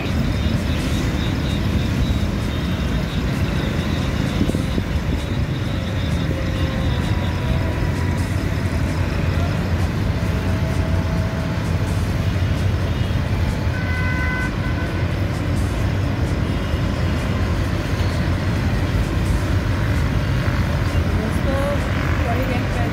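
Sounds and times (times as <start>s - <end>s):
diesel train rumbling: 0.0s - 22.9s.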